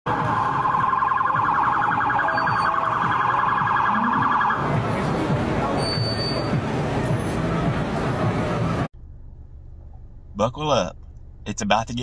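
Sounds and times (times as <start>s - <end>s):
warbling electronic siren: 0.1s - 4.9s
road traffic noise: 0.1s - 12.0s.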